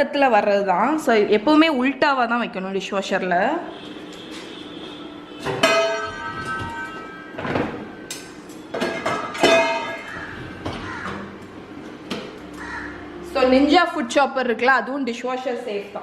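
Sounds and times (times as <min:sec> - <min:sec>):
metal dishes clanking: 0:05.4 - 0:11.4.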